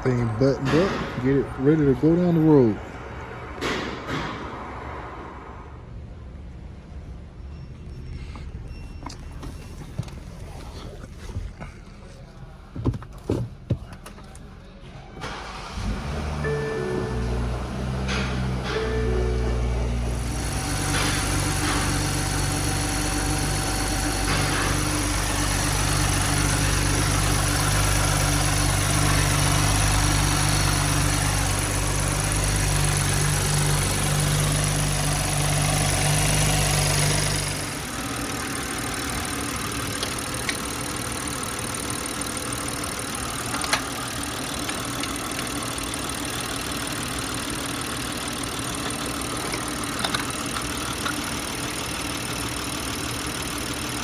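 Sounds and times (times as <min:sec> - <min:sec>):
car engine idling: 0:15.2 - 0:54.0
loud low hum: 0:15.9 - 0:37.9.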